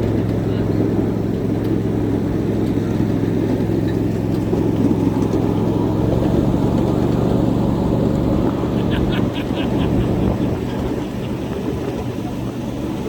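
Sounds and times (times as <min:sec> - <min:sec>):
miniature train rumbling on track: 0:00.0 - 0:13.0.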